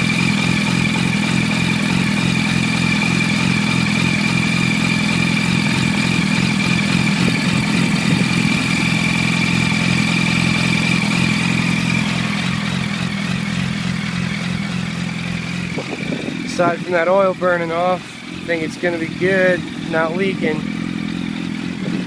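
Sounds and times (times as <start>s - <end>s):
high whine: 0.0s - 22.0s
motorcycle engine idling: 0.0s - 22.0s.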